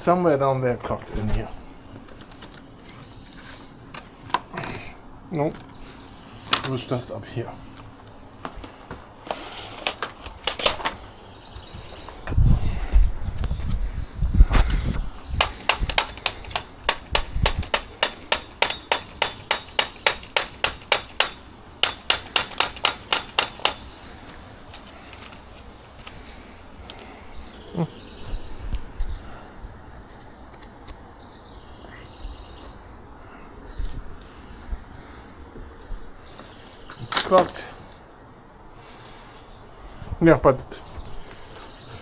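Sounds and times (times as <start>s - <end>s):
quiet handling noise: 0.6s - 27.6s
rapid sharp knocks on vacuum: 15.4s - 24.4s.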